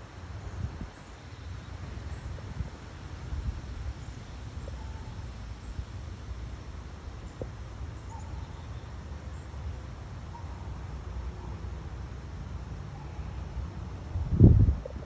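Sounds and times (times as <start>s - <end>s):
wind buffeting microphone: 14.0s - 15.0s.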